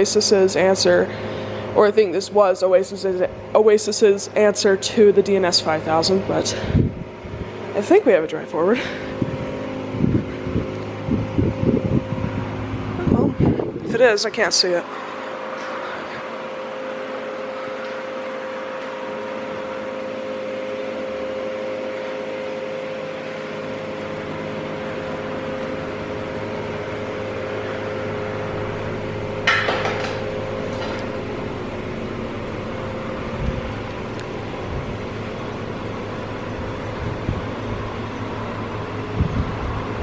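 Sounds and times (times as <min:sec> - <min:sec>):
car wash motors humming: 0:00.0 - 0:40.0
metal clank: 0:29.4 - 0:31.0.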